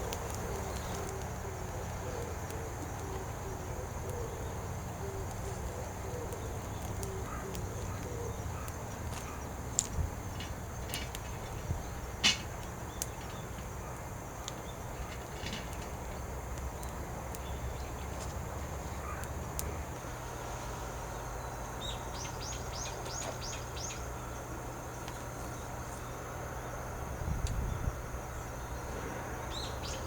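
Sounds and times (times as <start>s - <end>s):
faint clicks: 0.0s - 3.4s, 6.2s - 11.3s, 12.6s - 13.8s
bird chirping: 21.1s - 24.5s, 29.5s - 30.0s.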